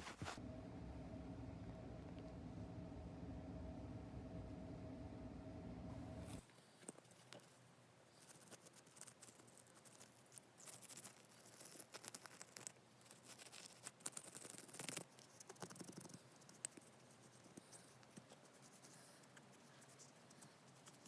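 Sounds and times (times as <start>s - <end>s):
small irregular clicks: 8.2s - 21.0s.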